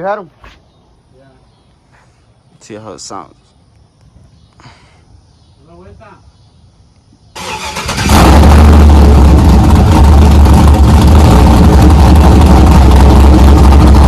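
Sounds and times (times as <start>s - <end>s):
pickup truck engine starting: 7.4s - 14.0s
truck engine idling loud: 7.6s - 14.0s.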